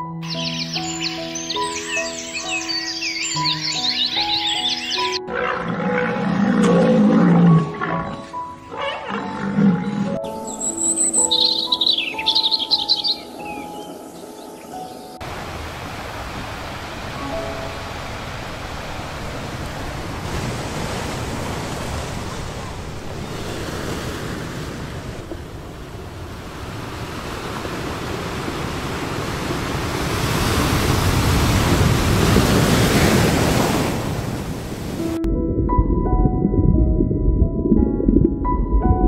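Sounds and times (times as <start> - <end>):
ocean waves washing onto beach: 15.2 - 35.2.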